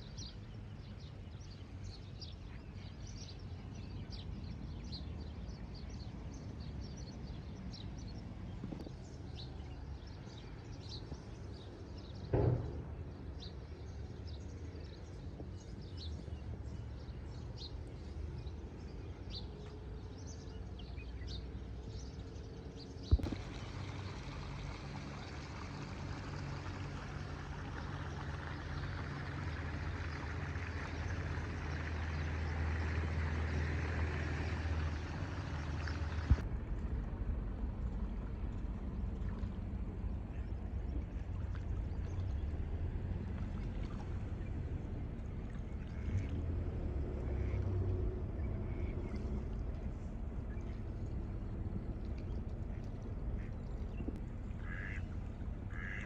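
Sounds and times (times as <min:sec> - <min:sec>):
low hum: 0:00.0 - 0:56.0
small birds chirping: 0:53.4 - 0:55.0, 0:55.7 - 0:56.0.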